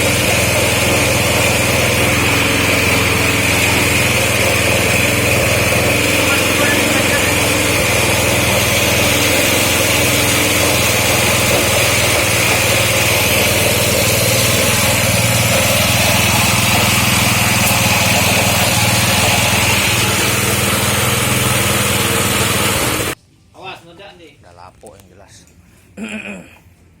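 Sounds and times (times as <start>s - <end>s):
small motor humming and whining: 0.0s - 23.2s.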